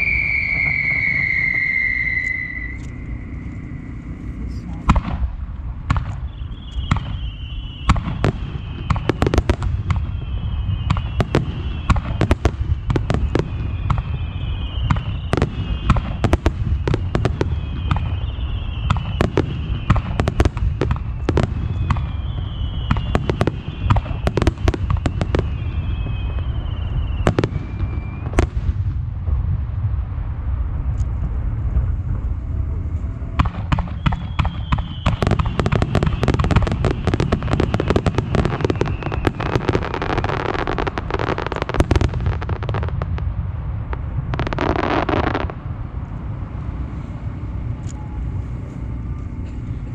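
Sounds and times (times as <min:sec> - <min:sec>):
falling firework whistles: 0:00.0 - 0:04.3, 0:05.9 - 0:29.0, 0:31.8 - 0:45.6
low rumble: 0:00.0 - 0:23.0, 0:23.6 - 0:49.9
firework bursts and cracks: 0:04.8 - 0:31.4, 0:33.4 - 0:45.6.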